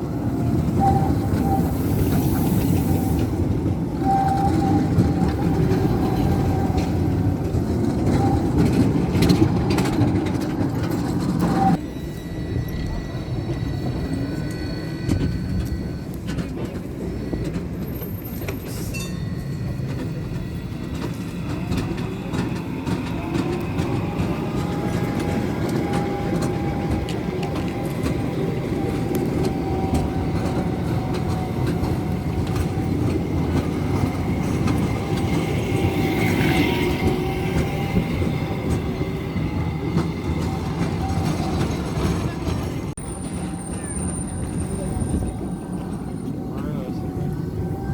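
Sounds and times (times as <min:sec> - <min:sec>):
tram motor whine: 0:00.0 - 0:47.9
tram rumbling on rails: 0:00.0 - 0:47.9
high squeal: 0:11.4 - 0:47.9.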